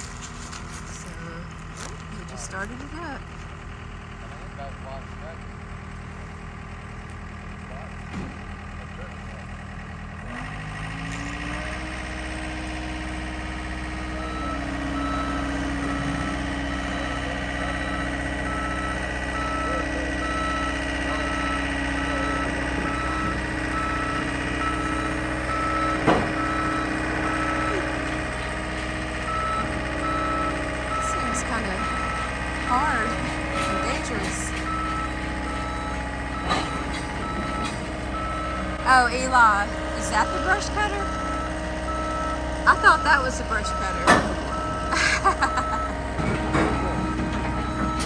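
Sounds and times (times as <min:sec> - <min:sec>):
diesel engine revving: 0:00.0 - 0:48.0
backup alarm beeping: 0:14.0 - 0:48.0
metallic clank: 0:36.4 - 0:38.3.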